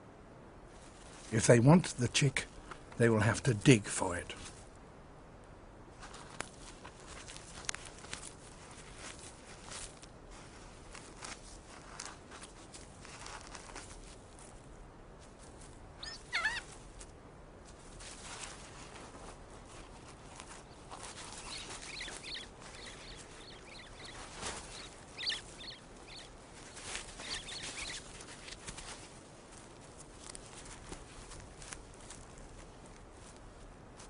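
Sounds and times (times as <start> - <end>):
scratching and scuffing earth: 5.9 - 34.0
high squeaky bird calls: 16.0 - 16.8, 20.6 - 28.7.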